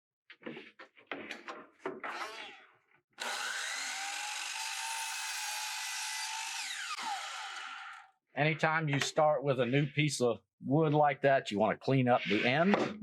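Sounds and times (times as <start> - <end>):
power saw whining: 3.2 - 8.1.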